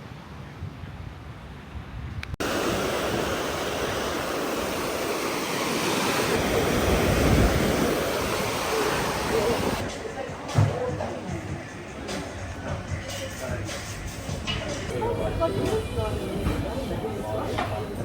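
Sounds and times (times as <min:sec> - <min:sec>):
wind rumble on microphone: 0:00.4 - 0:05.1, 0:06.2 - 0:09.9
waves breaking on a beach: 0:02.4 - 0:10.1.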